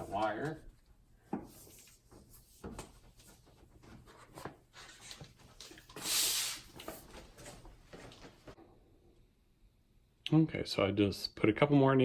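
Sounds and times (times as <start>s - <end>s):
hissing scrape: 5.9s - 6.9s.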